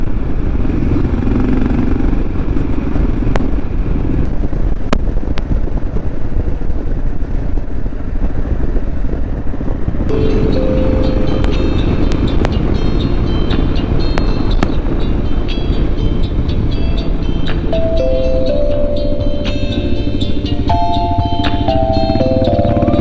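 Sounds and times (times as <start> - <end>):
motorcycle engine running: 0.0 - 23.0
wind noise on microphone: 0.0 - 23.0.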